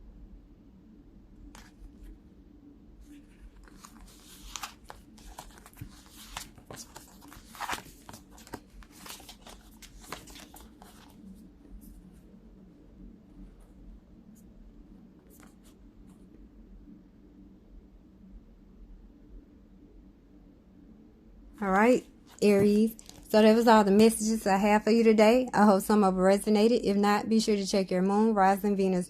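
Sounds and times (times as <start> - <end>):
faint steady hum: 0.0 - 29.0
cards rustling and clicking: 3.2 - 11.3, 22.3 - 23.3.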